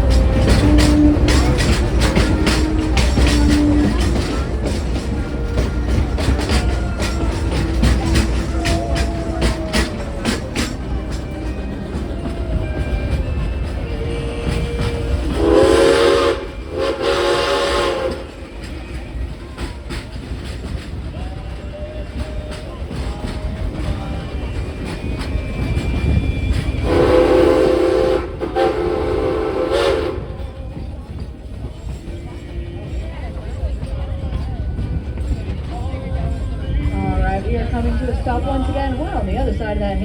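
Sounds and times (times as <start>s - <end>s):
steam train wheels clattering: 0.0s - 40.0s
steam train whistle blasts: 12.8s - 19.0s, 26.5s - 30.6s.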